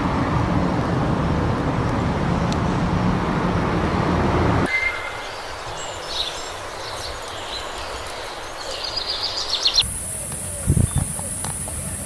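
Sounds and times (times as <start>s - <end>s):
passing vehicle noise: 0.0s - 8.5s
outdoor ambience: 0.0s - 12.0s.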